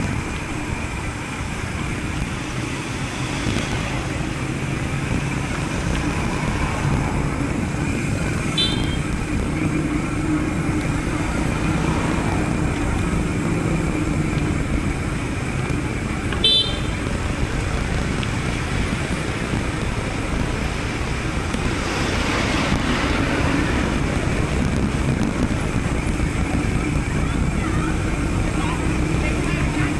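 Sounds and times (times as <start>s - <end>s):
motor vehicle running: 0.0s - 29.9s
road traffic noise: 0.0s - 29.9s
short horn toot: 8.5s - 9.1s, 16.4s - 17.0s.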